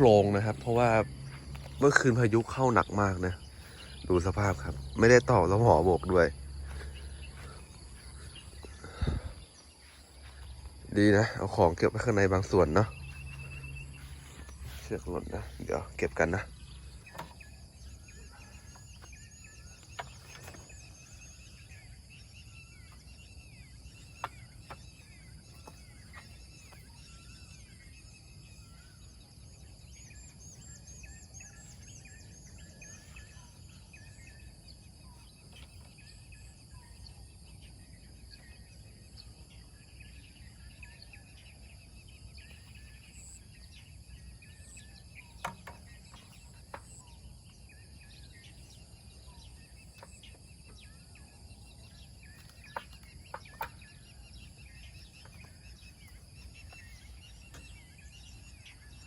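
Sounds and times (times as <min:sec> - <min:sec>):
low rumble: 0:00.0 - 0:11.0
small birds chirping: 0:00.0 - 0:59.0.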